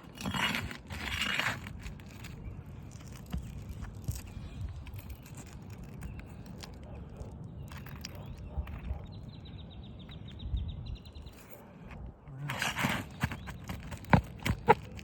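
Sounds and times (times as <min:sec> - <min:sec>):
short scrape: 0:00.1 - 0:01.8, 0:12.4 - 0:13.8.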